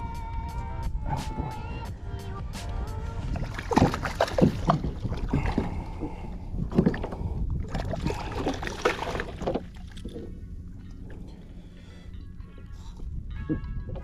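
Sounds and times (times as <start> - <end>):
water splashing: 3.1 - 12.7.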